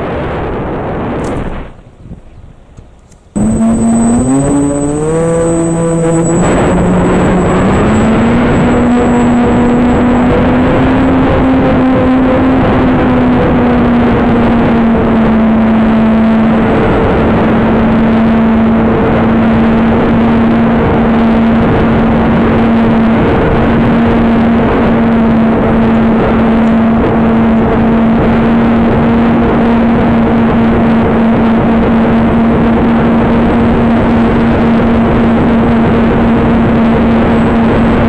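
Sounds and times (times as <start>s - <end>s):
wind rushing over microphone: 0.0s - 38.0s
electric motors humming: 3.4s - 12.3s.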